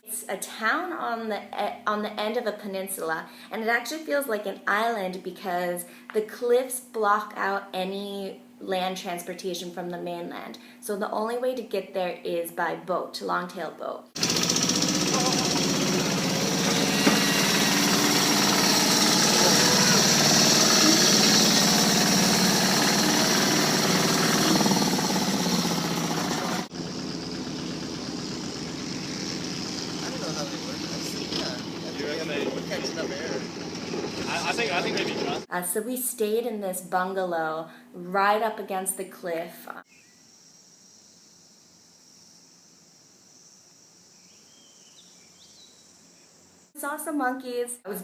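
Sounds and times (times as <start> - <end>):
insects buzzing: 14.2 - 35.4, 39.8 - 46.8
rattly boat engine running: 14.2 - 35.5.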